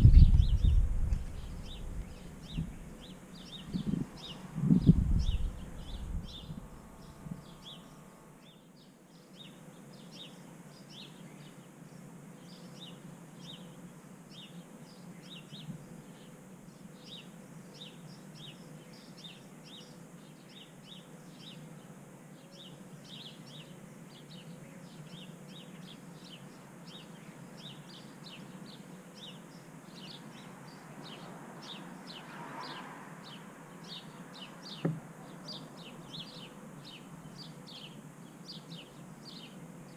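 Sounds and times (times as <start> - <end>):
birds chirping: 0.0 - 39.9
low background noise: 0.0 - 39.9
low knocks: 34.8 - 35.1.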